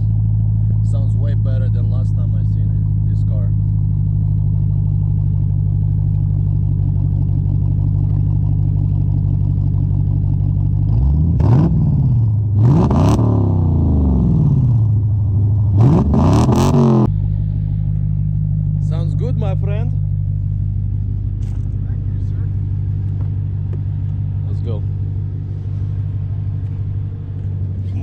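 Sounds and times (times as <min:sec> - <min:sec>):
car engine idling: 0:00.0 - 0:28.0
car engine revving: 0:00.0 - 0:28.0.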